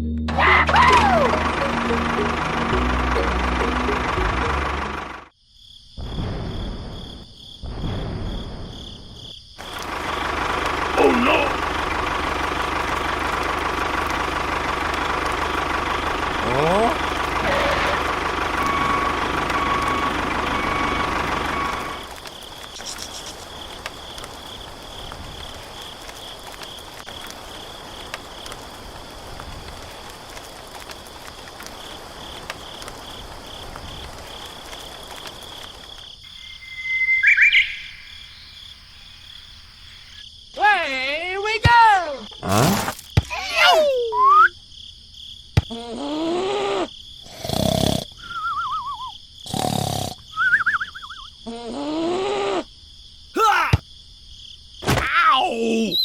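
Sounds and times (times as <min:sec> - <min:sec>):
cartoon falling glide: 0:00.1 - 0:05.1
rising and falling wail: 0:00.3 - 0:04.5
insect chirping buzz: 0:05.3 - 0:10.3, 0:18.3 - 0:43.4, 0:44.0 - 0:56.0
warbling whistle: 0:36.4 - 0:38.5, 0:48.2 - 0:49.2, 0:50.3 - 0:51.3.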